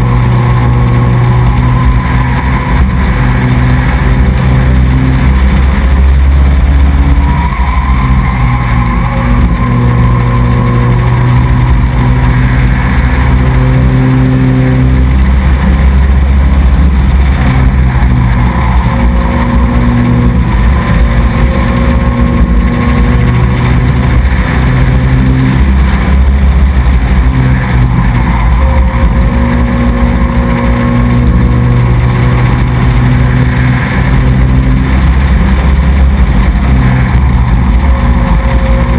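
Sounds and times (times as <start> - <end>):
truck engine revving: 0.0 - 38.9.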